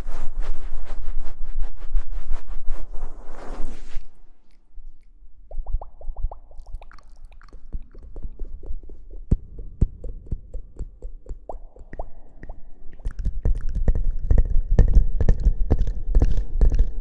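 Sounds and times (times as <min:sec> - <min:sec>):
crackling and soft popping: 0:04.4 - 0:17.0.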